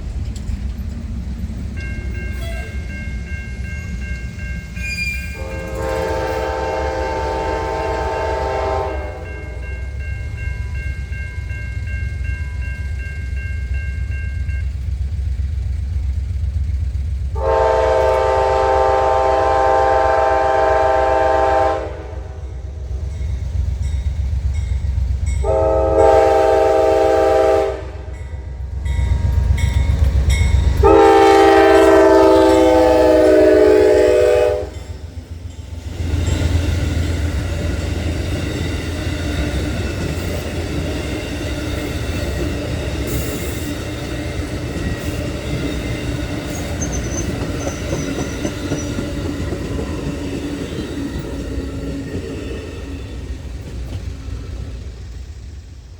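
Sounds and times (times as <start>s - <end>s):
train wheels rushing on rail: 0.0s - 55.9s
locomotive air horn blasts: 5.3s - 9.6s, 17.4s - 22.6s, 25.4s - 28.2s, 30.8s - 34.8s.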